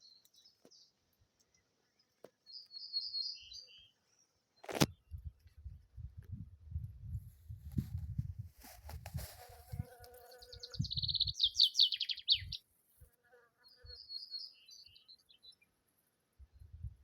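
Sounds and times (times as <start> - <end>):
honeybee buzzing: 9.4 - 11.0
songbird trilling: 10.3 - 12.6.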